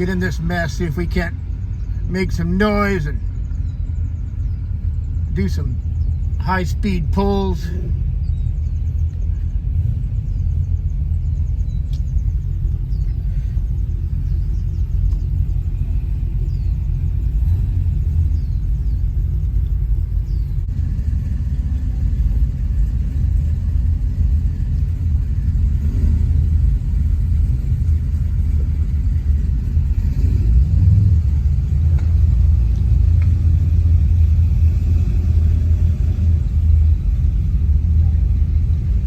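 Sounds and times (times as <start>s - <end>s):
car engine low rumble: 0.0s - 39.0s.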